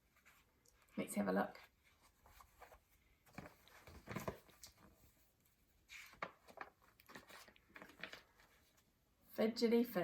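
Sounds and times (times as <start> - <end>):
book rustling and scuffing: 1.6 - 9.0.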